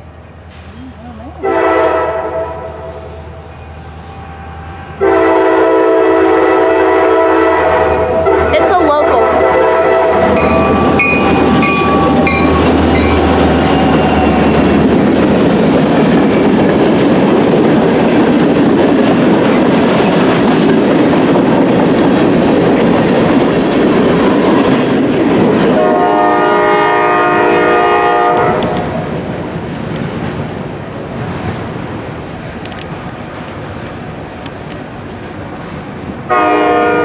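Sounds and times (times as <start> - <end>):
train horn: 1.3 - 15.0, 25.6 - 28.9, 36.3 - 37.0
freight cars clattering on rails: 9.7 - 25.9.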